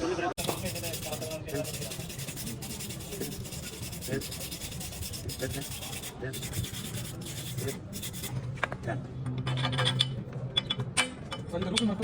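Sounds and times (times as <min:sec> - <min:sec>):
rapid scraping or rubbing: 0:00.4 - 0:08.4.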